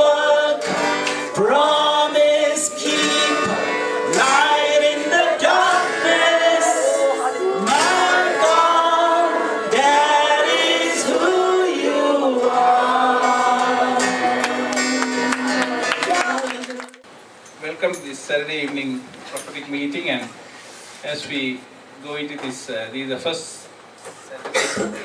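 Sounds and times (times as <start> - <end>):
men and women singing: 0.0 - 17.0
acoustic guitar: 0.0 - 17.1.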